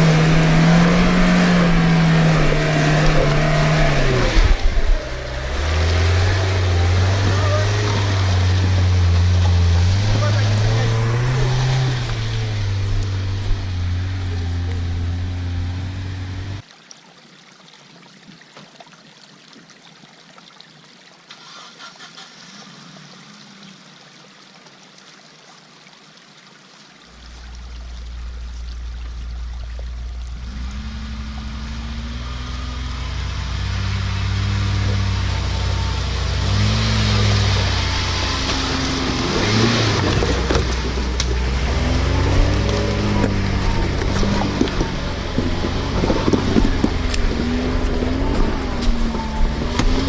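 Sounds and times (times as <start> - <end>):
engine revving under load: 0.0 - 16.6, 27.2 - 50.0.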